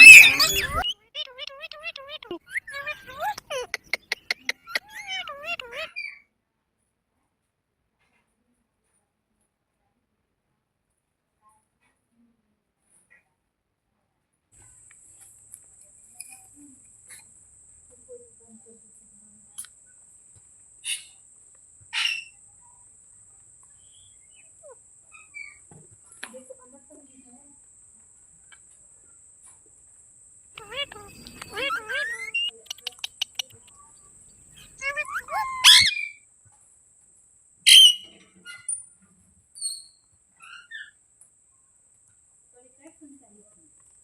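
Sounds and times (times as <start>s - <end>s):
whistled chirps: 0.0s - 0.9s, 37.7s - 38.1s
parrot sharp calls: 0.0s - 6.1s, 30.6s - 36.2s, 37.7s - 38.7s.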